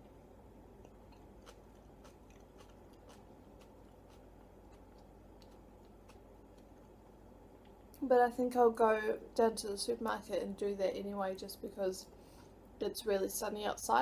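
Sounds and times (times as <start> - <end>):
low room hum: 0.0 - 14.0
mouth clicks of chewing: 0.8 - 7.0.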